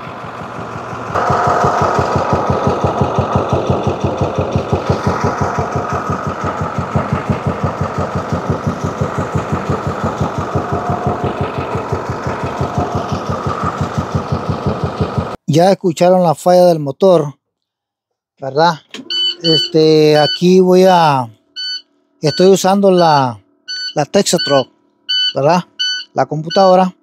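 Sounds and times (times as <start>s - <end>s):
diesel engine idling unevenly: 0.0s - 15.4s.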